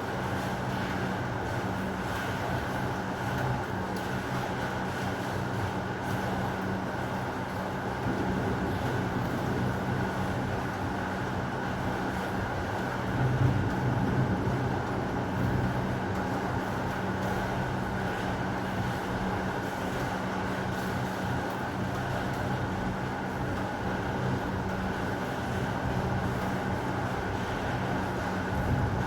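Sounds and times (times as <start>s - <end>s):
heavy rain: 7.9s - 18.6s.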